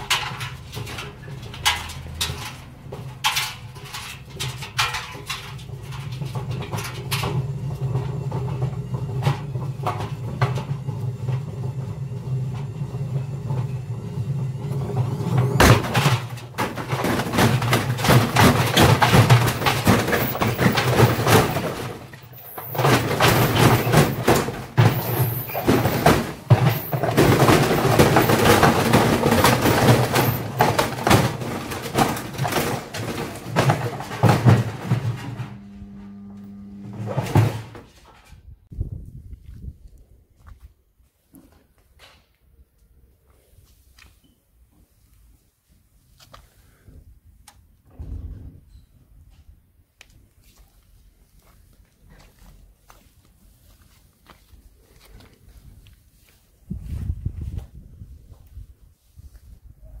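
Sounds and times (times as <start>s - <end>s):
washing machine hum: 0.0s - 38.0s
bricks knocking in a drum: 15.4s - 35.6s.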